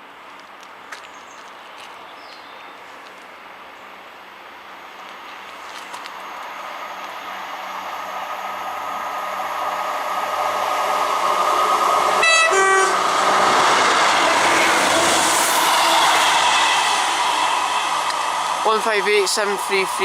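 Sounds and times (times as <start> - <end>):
diesel train passing: 4.2 - 20.0
two-note train horn: 12.0 - 13.1.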